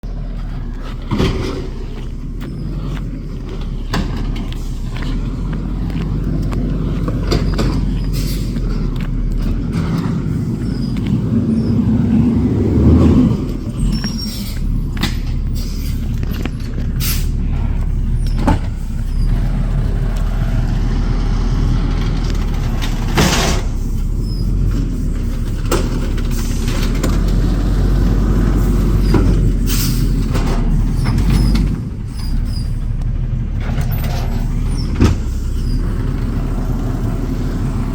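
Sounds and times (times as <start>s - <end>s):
truck engine running: 0.0s - 37.9s
air brake hiss: 29.6s - 30.2s.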